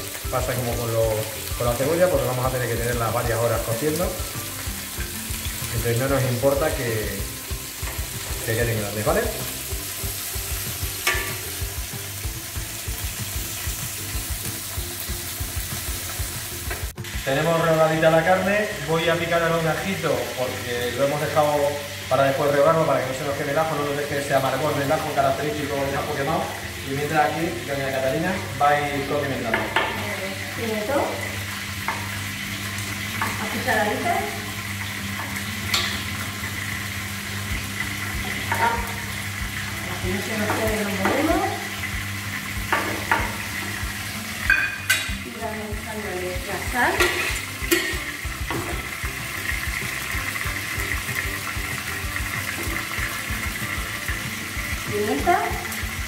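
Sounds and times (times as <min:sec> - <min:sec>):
meat and vegetables sizzling: 0:00.0 - 0:56.0
metal spoon knocking on pot: 0:11.0 - 0:11.4, 0:42.7 - 0:43.4, 0:44.5 - 0:45.2, 0:46.9 - 0:48.8.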